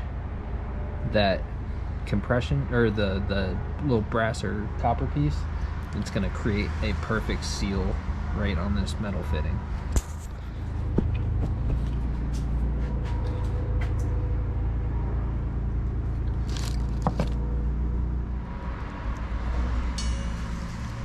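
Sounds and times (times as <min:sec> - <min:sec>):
low rumble with hum: 0:00.0 - 0:21.0.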